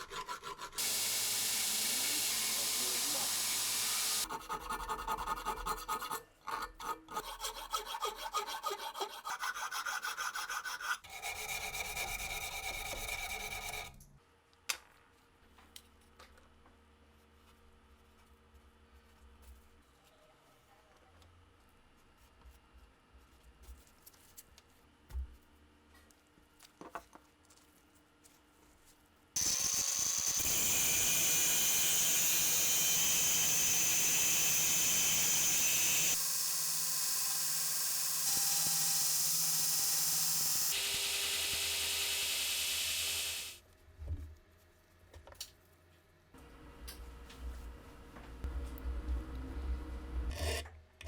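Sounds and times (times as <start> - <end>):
loud steady hiss: 0.8 - 4.2.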